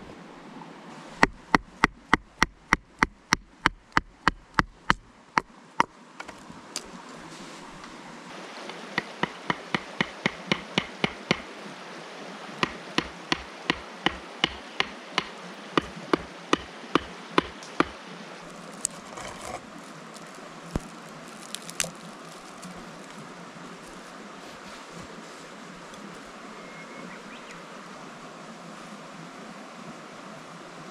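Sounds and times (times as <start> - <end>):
firewood being chopped: 1.2 - 6.4, 8.7 - 11.5, 12.6 - 18.0, 18.7 - 23.2.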